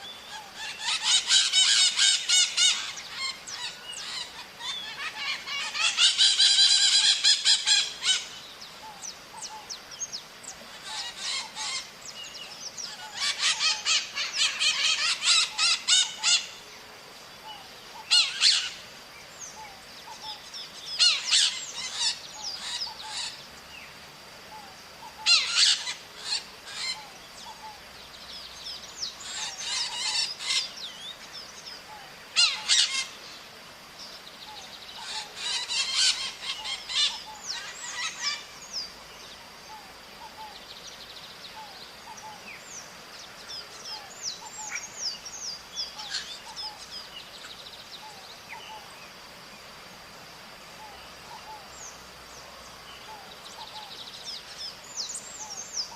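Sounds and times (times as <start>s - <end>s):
parrots calling harshly: 0.6s - 8.4s, 10.8s - 11.9s, 12.9s - 16.6s, 18.0s - 18.8s, 21.0s - 23.4s, 25.2s - 27.0s, 29.2s - 30.7s, 32.4s - 33.2s, 35.0s - 38.5s.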